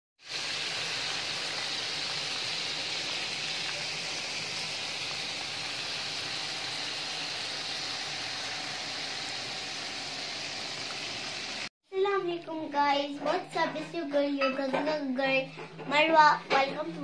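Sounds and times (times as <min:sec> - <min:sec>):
meat patties sizzling in oil: 0:00.2 - 0:11.7.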